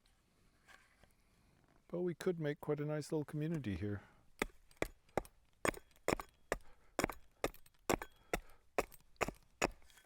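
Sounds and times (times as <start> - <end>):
hand tool chopping wood: 4.4 - 10.0.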